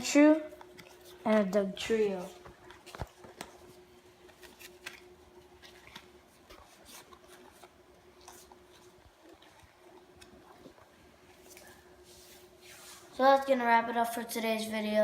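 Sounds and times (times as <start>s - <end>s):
faint steady hum: 0.0s - 15.0s
trading cards clicking and rustling: 0.1s - 11.7s.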